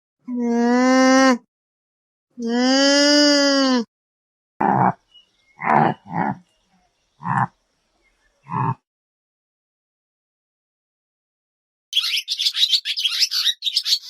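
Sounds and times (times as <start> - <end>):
long animal call: 4.6 - 6.5, 7.2 - 7.6, 8.4 - 8.8
short rough animal calls: 7.2 - 7.6.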